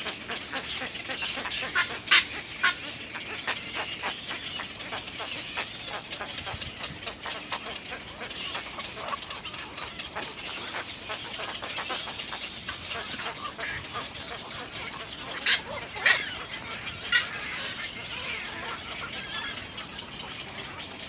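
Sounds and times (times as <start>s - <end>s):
egrets calling with clicking notes: 0.0s - 21.0s.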